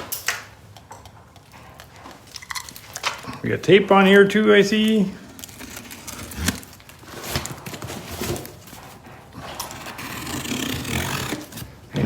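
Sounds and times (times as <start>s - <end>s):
tape tearing off cardboard: 5.2s - 8.8s, 9.6s - 12.0s.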